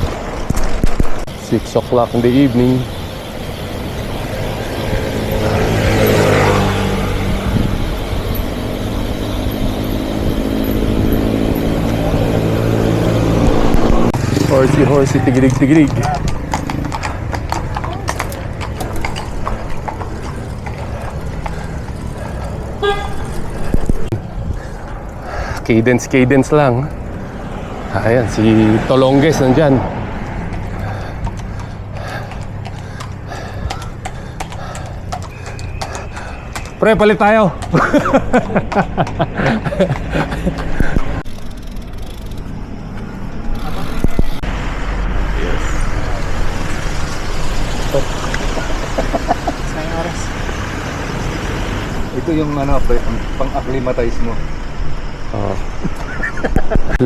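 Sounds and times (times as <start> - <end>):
low traffic rumble: 0.0 - 57.0
short vehicle horn toot: 22.8 - 23.4.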